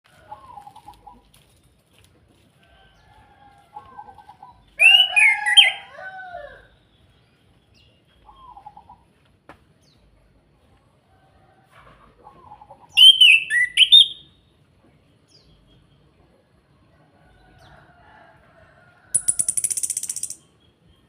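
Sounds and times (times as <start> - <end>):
sharp click: 19.2 - 20.4.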